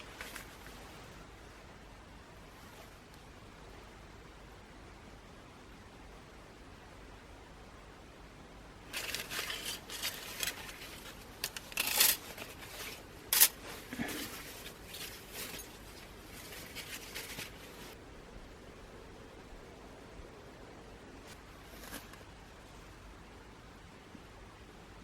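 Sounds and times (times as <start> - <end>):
rustling and scraping of objects: 0.0 - 1.2, 2.5 - 3.1, 8.8 - 18.0, 21.2 - 22.8.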